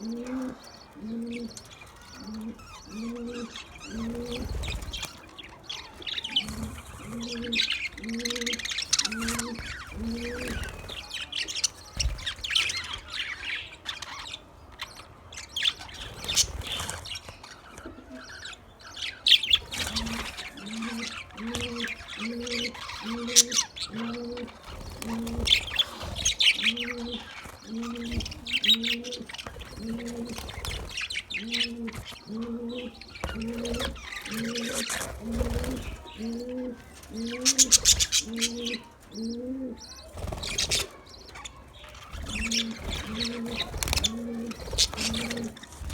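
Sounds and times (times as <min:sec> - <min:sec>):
budgerigars chattering and chirping: 0:00.0 - 0:45.9
low cooing: 0:31.4 - 0:39.8.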